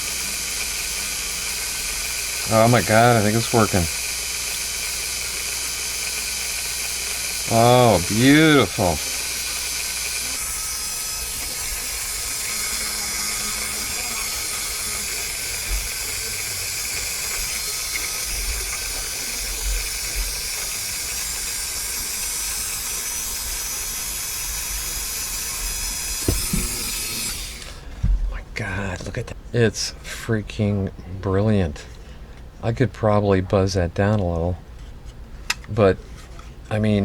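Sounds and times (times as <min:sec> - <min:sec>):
rotary tool hissing whir: 0:00.0 - 0:27.9.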